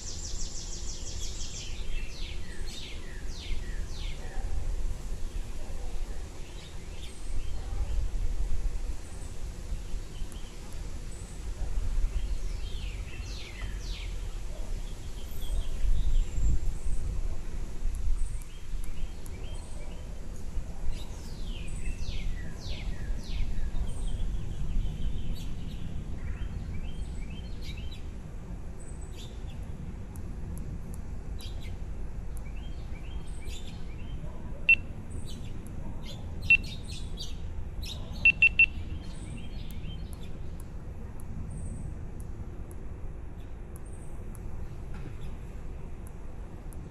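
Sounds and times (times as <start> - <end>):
baby birds chirping: 34.7 - 37.0, 37.8 - 38.8.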